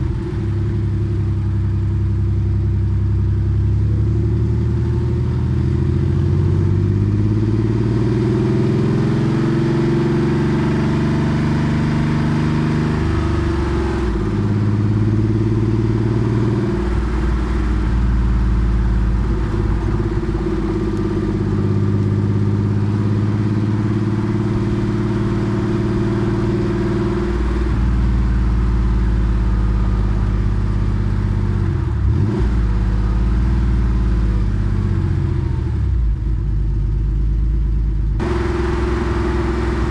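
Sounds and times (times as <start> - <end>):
car engine running: 0.0 - 10.8, 12.0 - 39.9.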